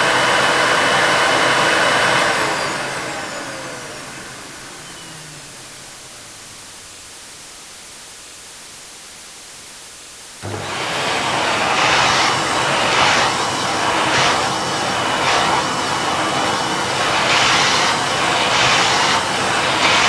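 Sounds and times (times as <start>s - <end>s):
faint steady hiss: 4.1s - 10.6s
appliance rushing noise: 10.4s - 20.0s.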